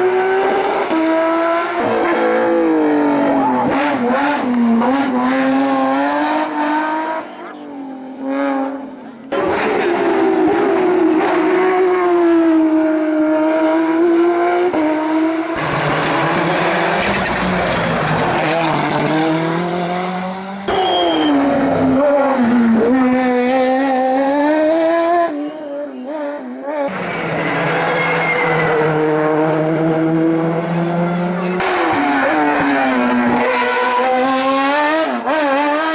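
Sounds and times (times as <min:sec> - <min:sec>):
race car engines revving: 0:00.0 - 0:35.9
tyre squeal: 0:20.7 - 0:21.6, 0:26.9 - 0:29.0.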